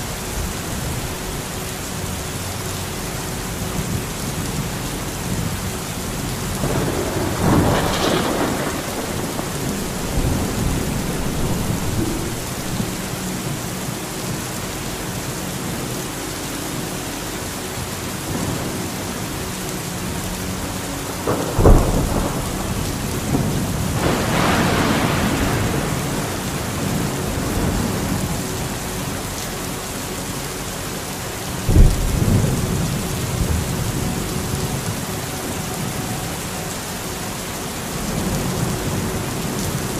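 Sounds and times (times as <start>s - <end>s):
steady rain: 0.0s - 39.9s
thunder rumbling: 3.3s - 16.0s, 17.8s - 29.8s, 31.4s - 39.9s
sharp thunderclaps: 6.6s - 13.0s, 21.2s - 28.3s.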